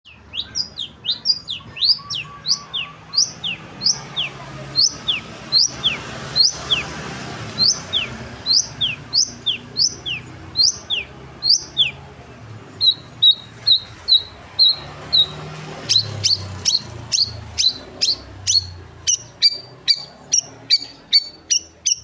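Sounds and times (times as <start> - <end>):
bird whistling calls: 0.1 - 6.9, 7.6 - 12.0, 12.8 - 22.0.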